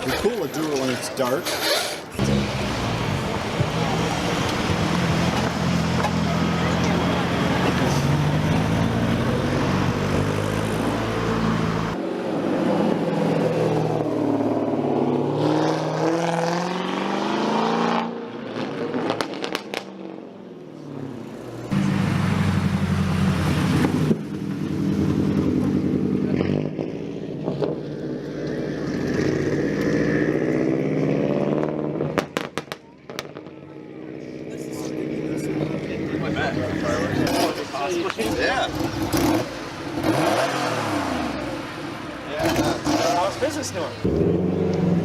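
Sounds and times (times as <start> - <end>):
car engines revving: 0.0 - 45.0
exhaust pops: 31.6 - 33.6.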